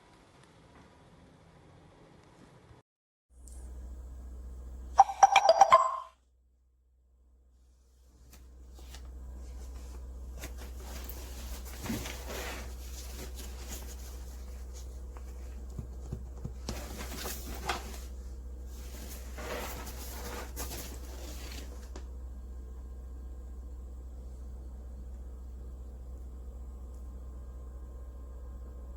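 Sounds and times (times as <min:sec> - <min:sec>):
steady low hum: 0:03.4 - 0:05.0, 0:06.4 - 0:28.9
soft rustling: 0:08.1 - 0:22.0.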